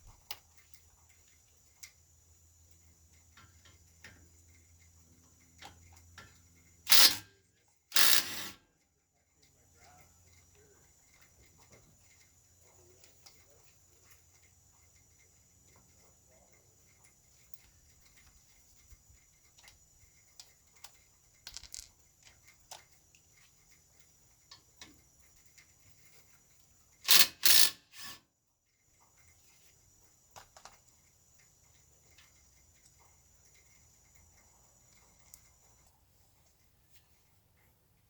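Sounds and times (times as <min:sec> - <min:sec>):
tools clicking and knocking: 0:05.6 - 0:07.2, 0:07.9 - 0:08.6, 0:20.8 - 0:22.9, 0:27.1 - 0:27.8
loud mechanical bursts: 0:06.9 - 0:07.2, 0:08.0 - 0:08.6.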